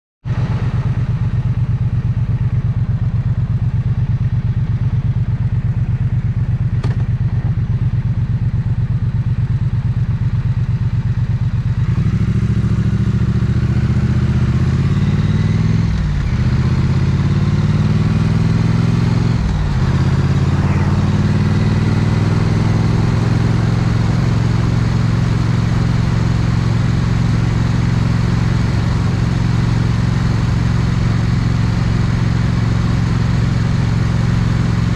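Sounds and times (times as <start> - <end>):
motorcycle engine idling and revving: 0.2 - 34.9.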